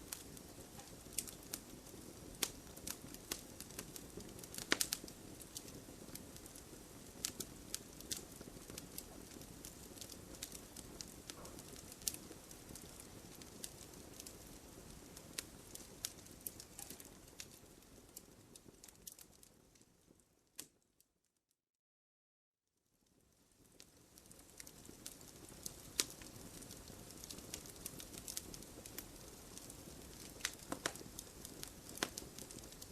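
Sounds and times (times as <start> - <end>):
flames rushing: 0.0 - 19.2, 24.2 - 32.9
sharp pops from burning logs: 0.0 - 19.4, 23.8 - 32.9
wood fire crackling: 0.0 - 20.9, 23.0 - 32.9.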